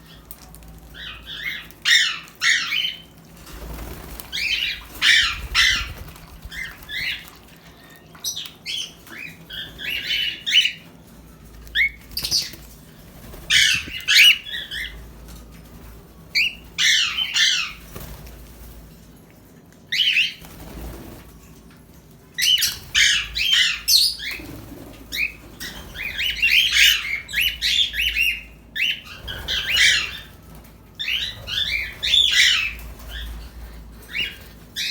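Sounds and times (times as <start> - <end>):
parrots chirping and squawking: 0.0 - 19.2, 22.4 - 34.9.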